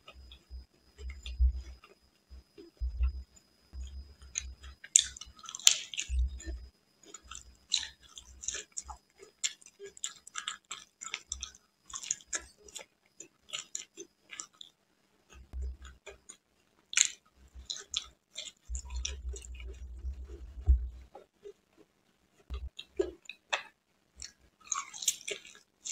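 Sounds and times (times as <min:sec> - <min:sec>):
wet chewing and mouth smacks: 0:00.1 - 0:03.2, 0:03.8 - 0:14.7, 0:17.0 - 0:21.6, 0:22.5 - 0:25.9
low bumps: 0:02.8 - 0:03.2, 0:18.7 - 0:21.1, 0:22.5 - 0:22.7.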